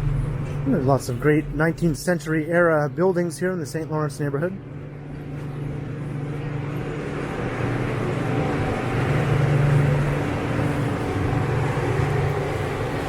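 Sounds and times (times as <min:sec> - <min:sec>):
vehicle engine humming: 0:00.0 - 0:13.0
road noise: 0:04.7 - 0:13.0.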